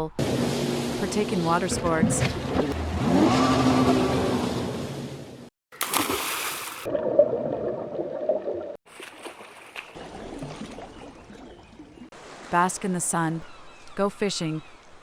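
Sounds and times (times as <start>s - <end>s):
water splashing and sloshing: 5.7s - 13.2s.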